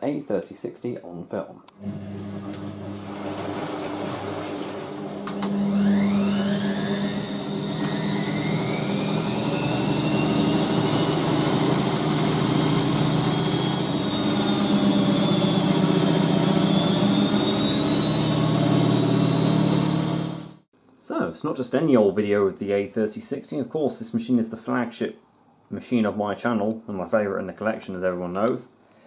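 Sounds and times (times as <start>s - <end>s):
washing machine motor whine: 1.8s - 20.7s.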